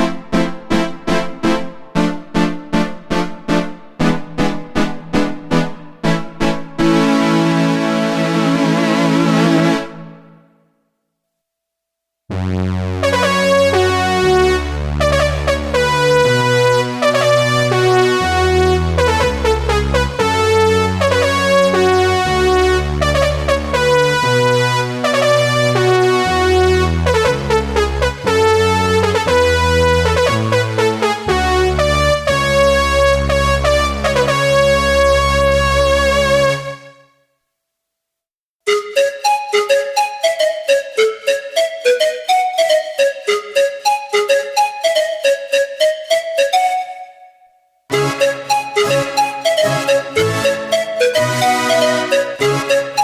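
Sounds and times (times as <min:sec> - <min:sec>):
synthesizer chords over bass: 0:00.0 - 0:10.2, 0:12.3 - 0:36.9, 0:47.9 - 0:53.0
short repeated high synth notes: 0:38.7 - 0:53.0.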